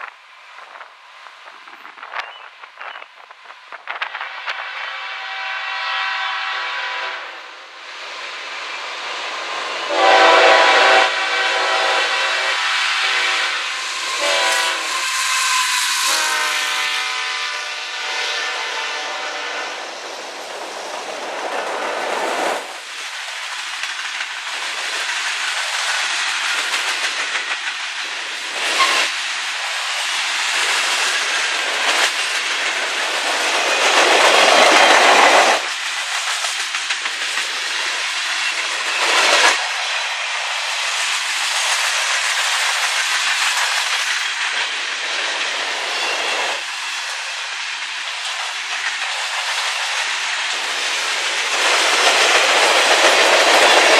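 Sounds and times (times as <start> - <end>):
train wheels clacking over rail joints: 20.2 - 53.9.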